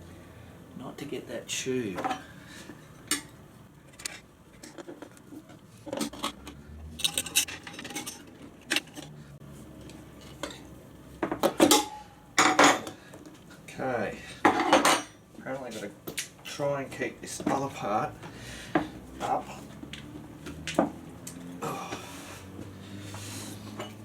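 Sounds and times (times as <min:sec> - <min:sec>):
metal tools clinking on wheel rim: 0:06.0 - 0:09.1.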